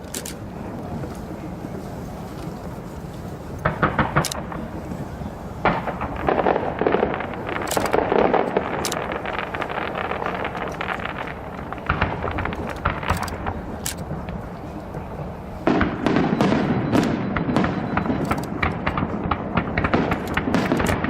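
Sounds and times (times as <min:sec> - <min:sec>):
fireworks bursting and crackling: 0:00.0 - 0:21.0
steady low rumble: 0:00.0 - 0:21.0.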